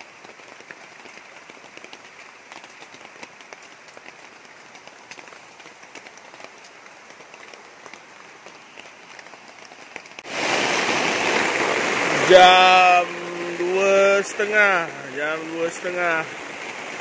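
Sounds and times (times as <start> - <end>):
rain pattering on surfaces: 0.0 - 17.0
loud steady rushing noise: 10.3 - 16.3.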